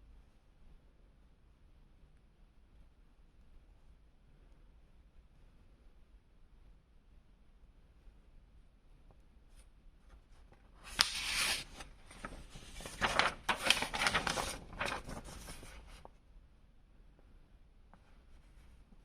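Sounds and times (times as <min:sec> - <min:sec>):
packaging rustling and crinkling: 0:10.8 - 0:16.0.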